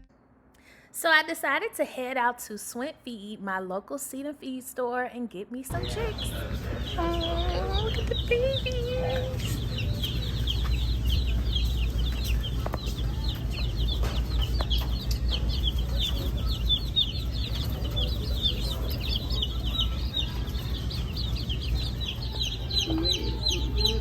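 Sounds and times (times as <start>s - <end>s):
baby chicks peeping: 5.7s - 24.0s.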